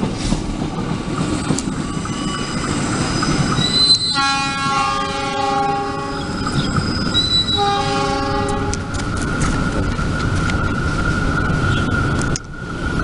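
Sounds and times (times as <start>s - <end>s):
train running on rails: 0.0s - 13.0s
train horn blasts: 3.7s - 6.3s, 7.3s - 8.9s.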